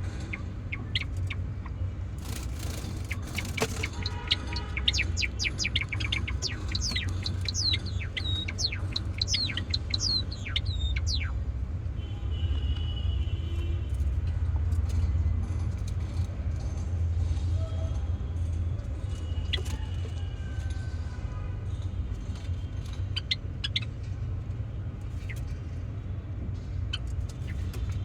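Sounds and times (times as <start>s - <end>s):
sparrows chirping: 0.0s - 11.6s, 22.0s - 28.0s.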